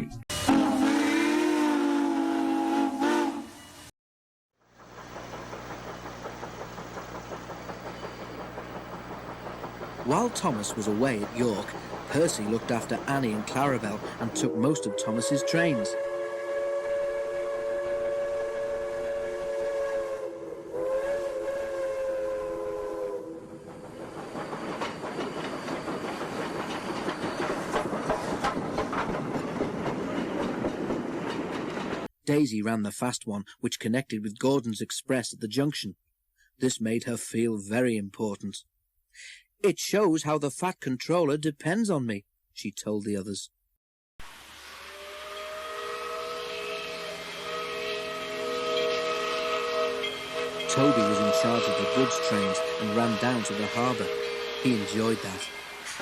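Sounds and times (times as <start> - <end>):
steam locomotive whistle: 0.3 - 3.9, 14.3 - 23.6, 44.6 - 56.0
train rumbling past: 4.6 - 32.1, 44.3 - 56.0
wheels clacking over rail joints: 4.7 - 14.4, 23.6 - 32.1.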